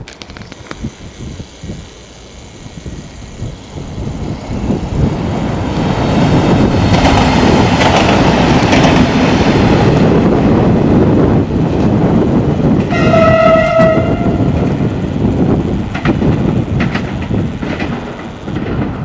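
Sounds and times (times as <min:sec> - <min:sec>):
diesel train passing: 0:00.0 - 0:19.0
wheel clacks over rail joints: 0:05.2 - 0:09.7, 0:15.8 - 0:19.0.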